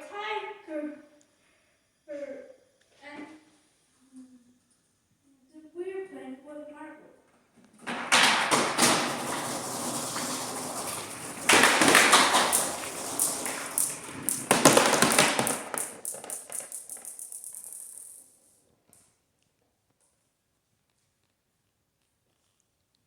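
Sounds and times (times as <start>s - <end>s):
small hard objects clattering: 7.9s - 18.3s.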